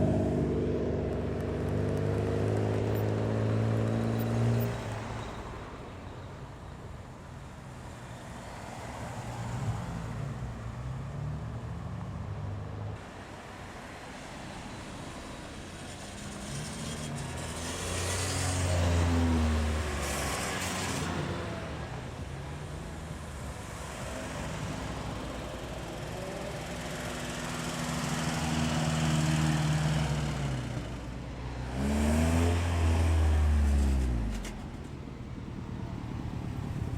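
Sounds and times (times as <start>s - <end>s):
cars driving past: 13.0s - 36.9s.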